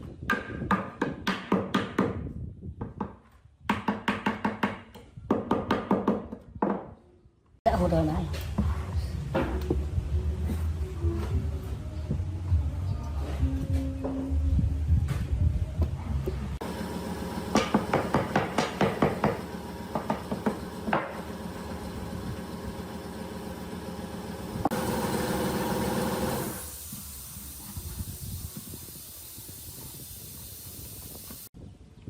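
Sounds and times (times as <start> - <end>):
hammer knocks on wood: 17.6 - 21.2
faint hiss: 26.5 - 31.5.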